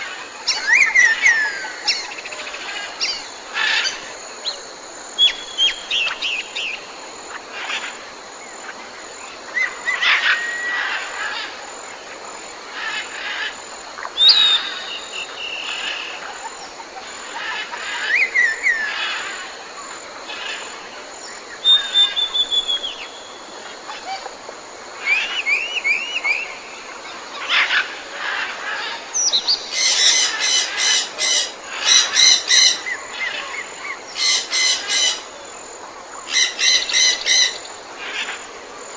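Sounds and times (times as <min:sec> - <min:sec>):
background hiss: 0:00.0 - 0:38.9
birds chirping and singing: 0:00.4 - 0:04.0.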